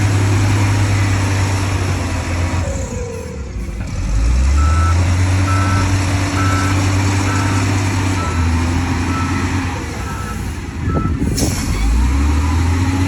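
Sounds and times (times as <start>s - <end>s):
diesel engine drone: 0.0s - 13.0s
vehicle backup alarm beeping: 4.6s - 11.2s.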